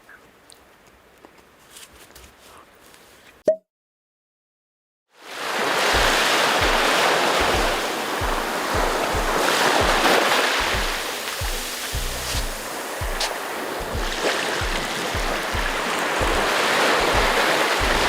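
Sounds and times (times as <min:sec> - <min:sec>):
storm wind and rain rushing: 0:05.3 - 0:18.0
music low beat thumping: 0:06.0 - 0:18.0.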